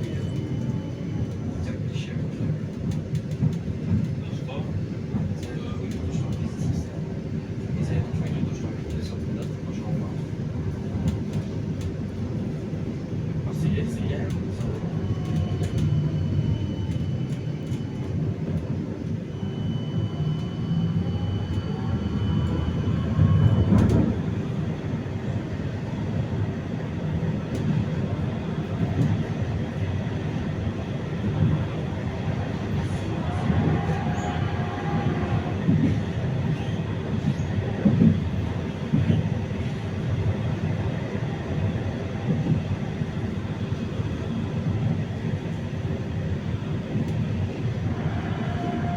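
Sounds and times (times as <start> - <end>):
tram wheels rumbling on rails: 0.0 - 48.9
traction drive whine: 14.8 - 25.4.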